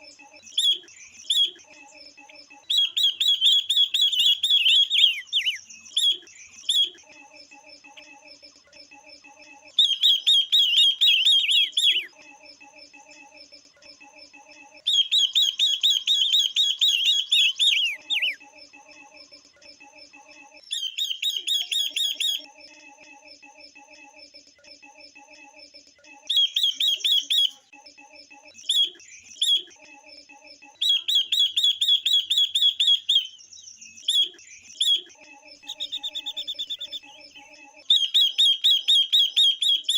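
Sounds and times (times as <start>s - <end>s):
songbirds rapid high chirping: 0.0s - 7.1s, 9.7s - 12.2s, 14.8s - 18.4s, 20.6s - 22.5s, 26.3s - 27.6s, 30.8s - 39.9s
lower repeated bird notes: 2.6s - 7.0s, 9.8s - 12.2s, 14.9s - 18.4s, 26.2s - 27.6s, 30.8s - 39.9s.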